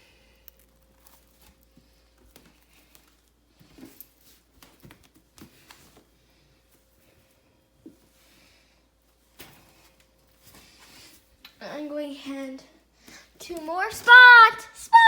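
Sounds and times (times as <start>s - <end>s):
soft crunching clicks and rustles: 0.0s - 11.6s.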